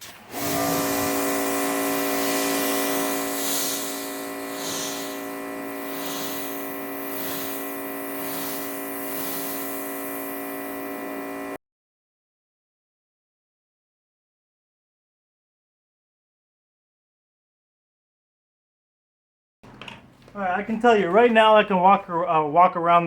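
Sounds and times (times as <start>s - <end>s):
pressure washer whine: 0.0s - 11.6s
water jet hissing: 0.0s - 11.6s.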